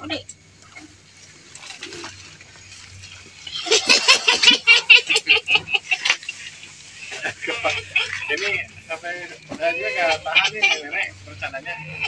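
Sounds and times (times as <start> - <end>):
person laughing loudly: 3.6 - 8.7, 9.7 - 11.1.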